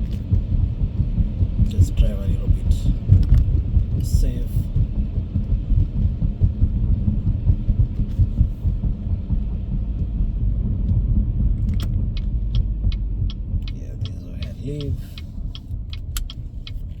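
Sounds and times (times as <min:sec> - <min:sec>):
car engine and road noise: 0:00.0 - 0:17.0
regular clicking: 0:11.6 - 0:17.0.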